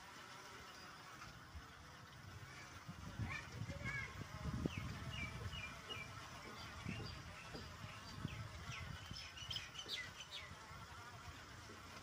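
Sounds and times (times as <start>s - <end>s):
small birds chirping: 3.8s - 10.7s.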